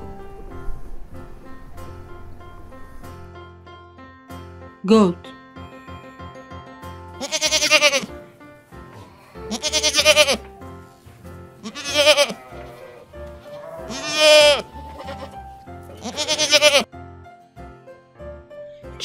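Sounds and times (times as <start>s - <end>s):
light background music: 0.0s - 19.0s
goat bleating: 7.2s - 8.1s, 9.3s - 10.5s, 11.6s - 16.9s.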